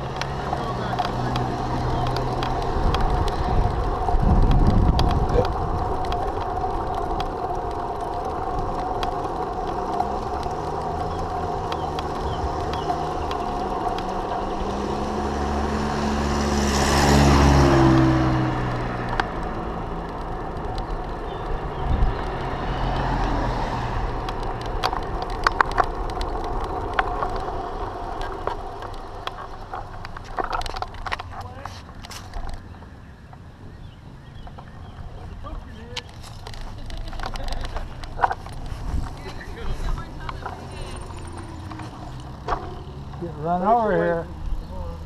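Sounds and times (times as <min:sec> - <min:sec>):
sharp ticks: 0:00.0 - 0:32.6
motor vehicle passing: 0:00.0 - 0:45.0
road and wind noise: 0:00.0 - 0:45.0.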